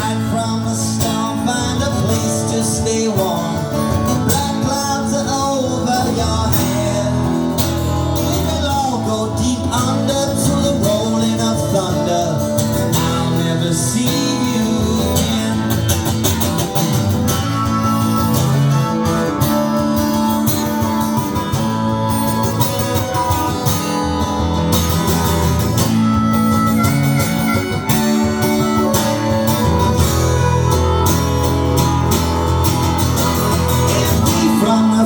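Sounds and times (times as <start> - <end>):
guitar melody: 0.0 - 35.0
steady bass: 0.0 - 35.0.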